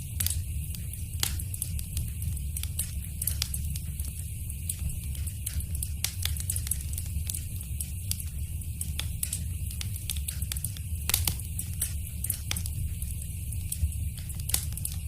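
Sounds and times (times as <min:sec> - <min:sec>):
flames rumbling: 0:00.0 - 0:15.0
firewood pops and snaps: 0:01.2 - 0:01.8, 0:10.1 - 0:12.7, 0:14.2 - 0:15.0.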